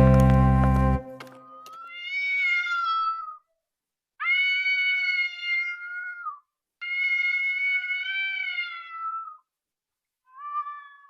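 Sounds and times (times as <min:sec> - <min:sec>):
cat meowing: 0:01.5 - 0:03.5, 0:04.2 - 0:09.5, 0:10.3 - 0:11.0.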